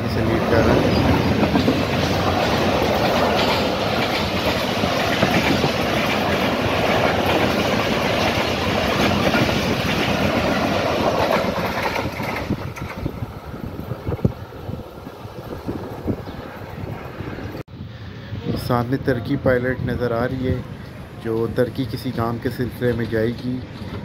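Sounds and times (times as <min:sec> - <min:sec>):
train wheels clattering on rails: 0:00.0 - 0:13.3, 0:21.3 - 0:24.0.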